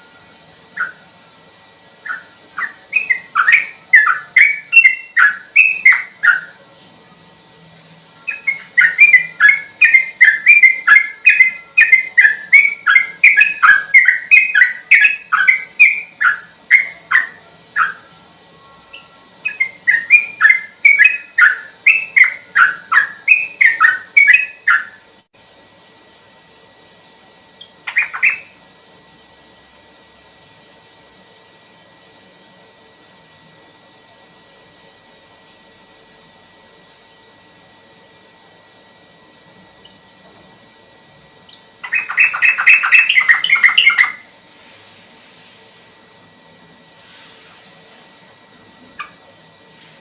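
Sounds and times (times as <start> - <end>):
bird singing whistled notes: 2.0 - 6.6, 8.3 - 18.1, 18.8 - 25.0, 27.6 - 28.6, 41.8 - 44.2.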